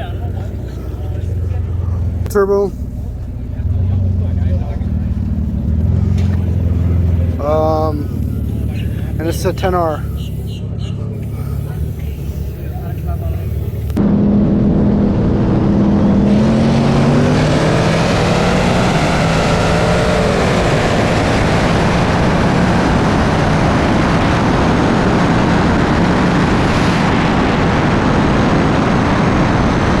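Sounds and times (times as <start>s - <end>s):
racing car engines at full throttle: 0.0s - 30.0s
rushing noise: 5.3s - 30.0s.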